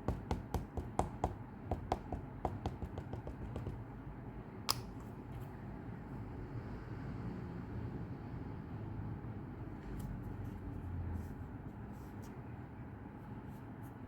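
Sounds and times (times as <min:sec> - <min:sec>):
rubber stamp tapping ink pad: 0:00.0 - 0:03.9.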